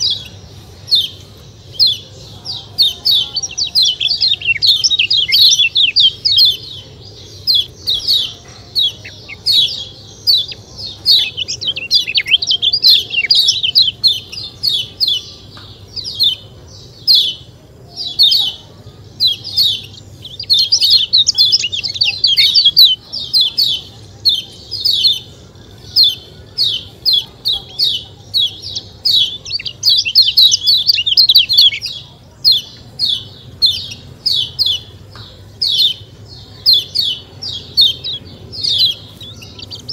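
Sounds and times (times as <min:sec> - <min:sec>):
bird chattering high chirps: 0:00.0 - 0:39.9.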